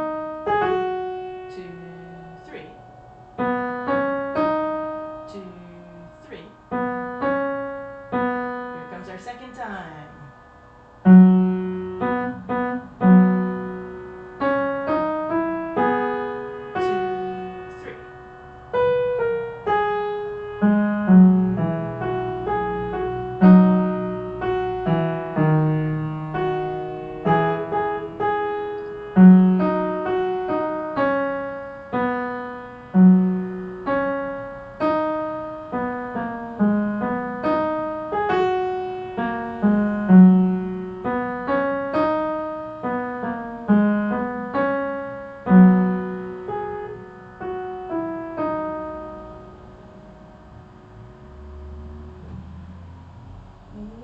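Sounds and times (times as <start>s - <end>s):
slow piano melody: 0.0s - 54.0s.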